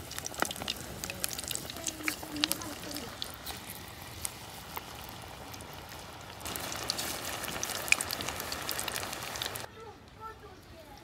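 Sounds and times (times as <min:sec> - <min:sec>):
food frying in hot oil: 0:00.0 - 0:09.7.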